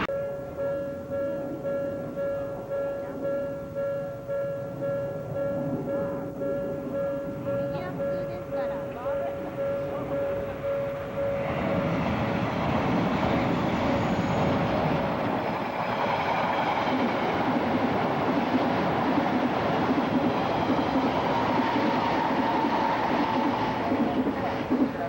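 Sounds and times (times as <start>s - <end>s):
faint whining tones: 0.0s - 25.0s
train wheels rumbling on rails: 0.0s - 25.0s.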